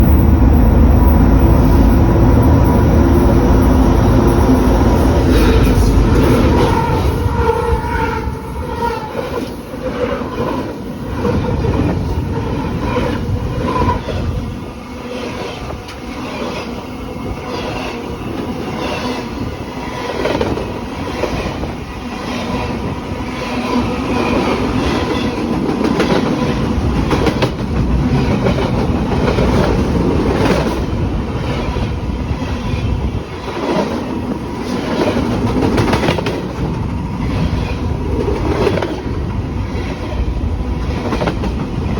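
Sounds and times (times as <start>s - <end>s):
train rumble: 0.0s - 41.9s
train wheels clacking over rail joints: 34.6s - 39.0s.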